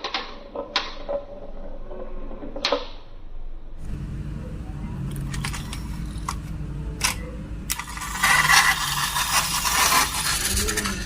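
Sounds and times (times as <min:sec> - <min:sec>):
steady low hum: 0:00.3 - 0:11.0
marbles clattering down a track: 0:07.7 - 0:11.0.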